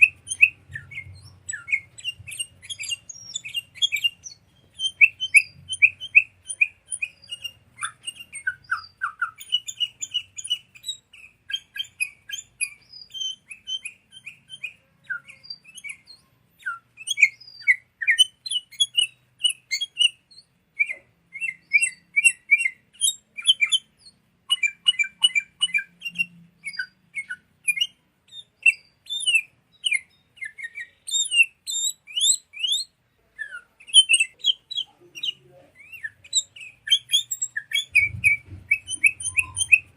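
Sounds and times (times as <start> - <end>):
bulbuls chirping and whistling: 0.0 - 39.9.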